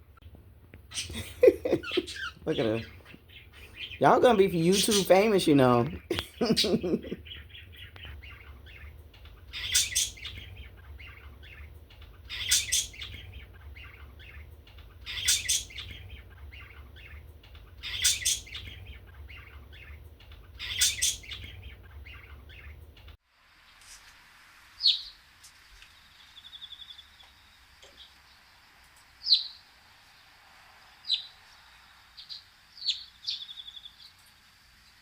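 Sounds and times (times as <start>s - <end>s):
birds chirping: 0.0s - 23.2s, 24.8s - 35.0s
low steady hum: 0.0s - 23.2s
bird trill: 0.9s - 23.0s.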